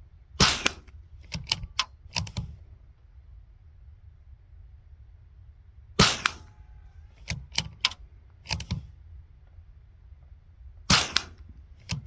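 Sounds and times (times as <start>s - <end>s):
suppressed rifle shot: 0.4s - 0.9s, 6.0s - 6.6s, 10.9s - 11.5s
short sharp clicks: 0.4s - 2.5s, 6.0s - 6.5s, 10.9s - 12.0s.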